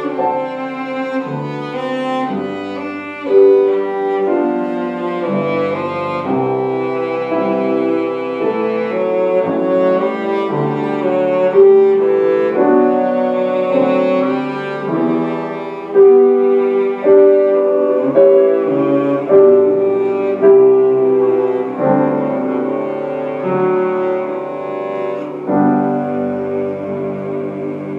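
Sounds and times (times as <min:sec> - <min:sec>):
cello melody: 0:00.0 - 0:27.9
piano accompaniment: 0:00.0 - 0:27.9.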